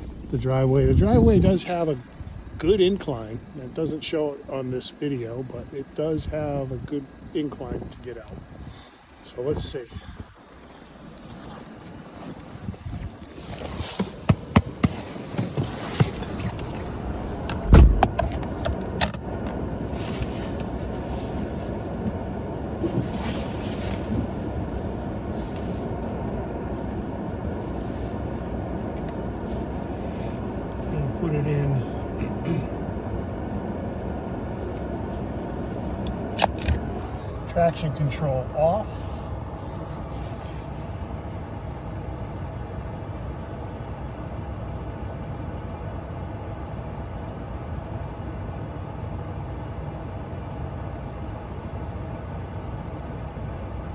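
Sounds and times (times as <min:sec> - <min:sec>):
pickup truck engine running: 0:00.0 - 0:53.9
heavy thump: 0:17.4 - 0:18.3.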